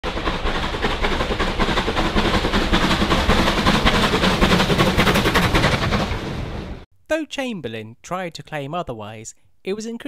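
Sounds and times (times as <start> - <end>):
train rumbling and clattering: 0.0 - 6.8.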